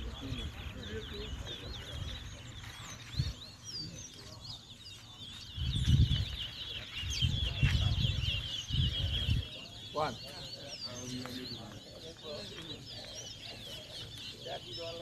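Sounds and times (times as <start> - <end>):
low rumbles on microphone: 0.0 - 10.6
finches chirping and twittering: 0.0 - 15.0.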